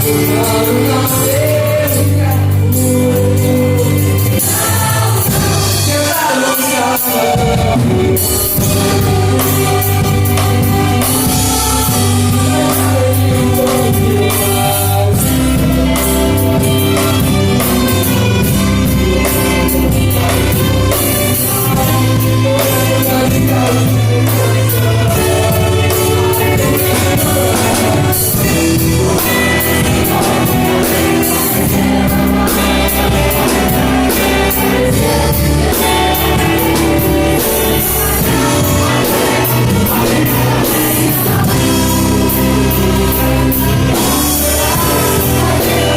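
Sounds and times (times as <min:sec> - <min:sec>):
choir singing gospel song: 0:00.0 - 0:45.9
drums keeping steady beat: 0:00.0 - 0:45.9
orchestra playing: 0:00.0 - 0:45.9.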